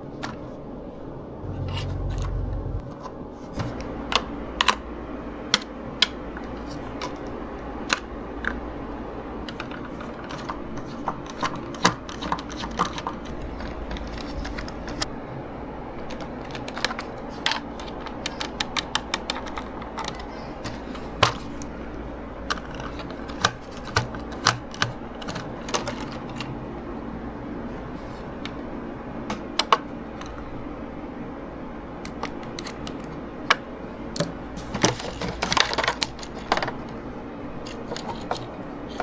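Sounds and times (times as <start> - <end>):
steady low hum: 1.1 - 9.4.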